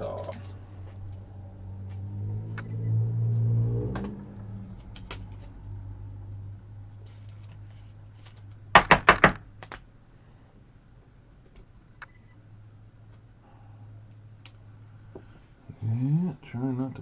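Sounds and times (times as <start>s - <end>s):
low hum: 0.0s - 8.8s
cards clicking: 4.8s - 5.5s.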